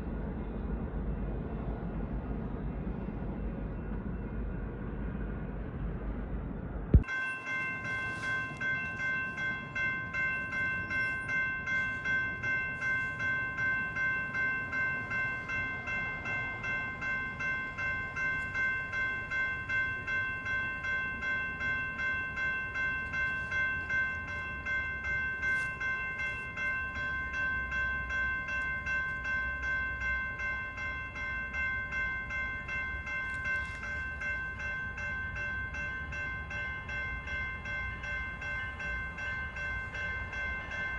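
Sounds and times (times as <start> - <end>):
railroad crossing bell ringing: 7.0 - 40.9.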